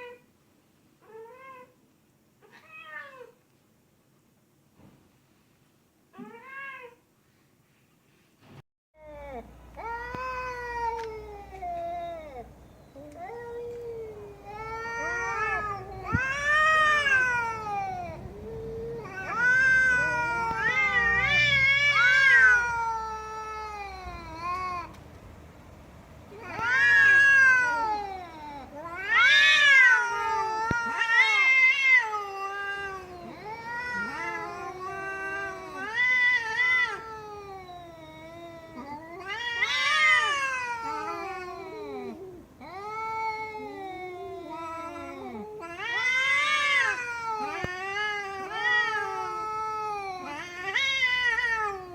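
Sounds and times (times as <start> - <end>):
cat yowling: 2.4 - 3.4, 9.0 - 25.0, 26.3 - 51.9.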